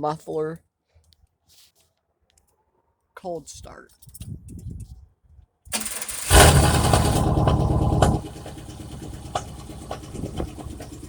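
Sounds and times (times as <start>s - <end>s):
engine misfire thumps: 5.7s - 11.0s
starter motor cranking: 5.7s - 11.0s
loud engine idling: 5.8s - 11.0s.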